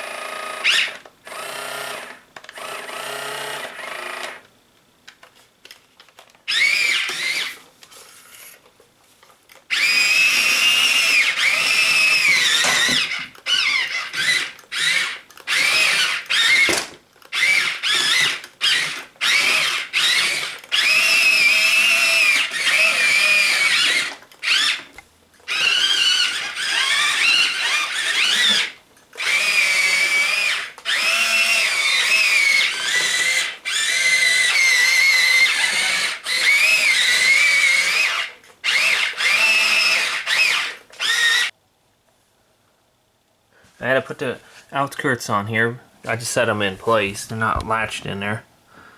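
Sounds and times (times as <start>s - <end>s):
small electric motors whining: 0.0s - 4.4s, 6.5s - 8.6s, 9.7s - 41.5s.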